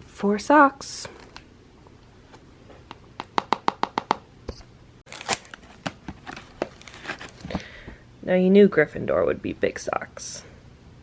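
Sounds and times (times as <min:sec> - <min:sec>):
packaging crackling: 0:05.1 - 0:07.5.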